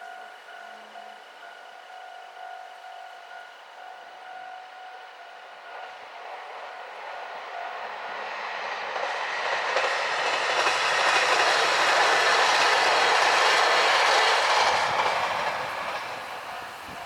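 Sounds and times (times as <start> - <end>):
diesel train passing: 0.0 - 17.0
wheels clattering on rails: 5.8 - 17.0.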